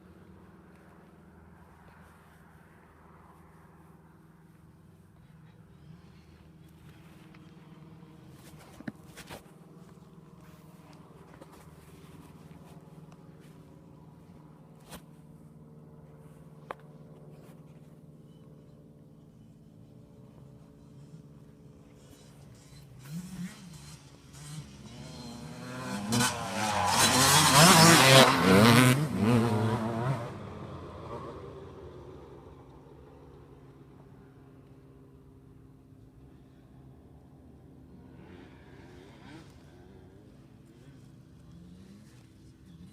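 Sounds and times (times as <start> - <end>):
faint engine hum: 0.0 - 42.9
handling clicks and rustles: 4.4 - 23.0
motocross bike engine revving: 21.9 - 31.5, 38.0 - 42.9.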